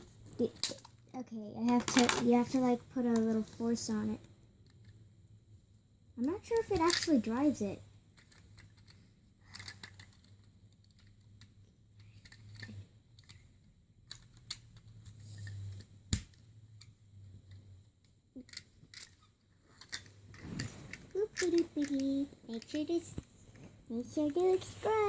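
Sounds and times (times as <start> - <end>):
plastic toy pieces clicking: 0.4 - 1.0, 1.7 - 2.3, 6.5 - 7.1, 8.2 - 13.4, 14.1 - 16.4, 18.4 - 23.0.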